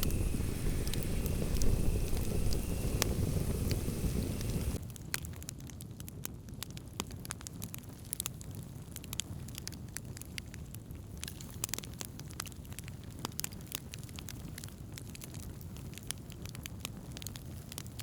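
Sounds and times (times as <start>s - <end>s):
low rumble of flames: 0.0s - 5.5s
wood fire crackling and popping: 0.0s - 18.0s.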